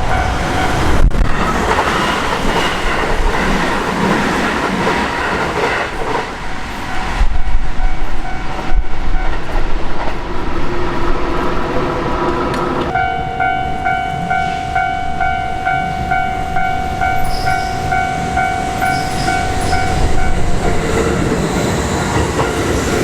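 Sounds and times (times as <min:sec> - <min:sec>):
crossing warning bell: 0:00.0 - 0:01.1, 0:06.4 - 0:09.6, 0:12.8 - 0:23.0
train steady rumble: 0:00.0 - 0:23.0
train wheels clattering on rails: 0:00.0 - 0:23.0.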